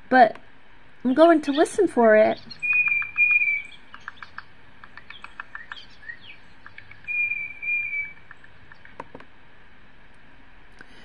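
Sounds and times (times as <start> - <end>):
recorded bird song through speakers: 1.0 - 9.2
sharp clicks: 2.4 - 9.3.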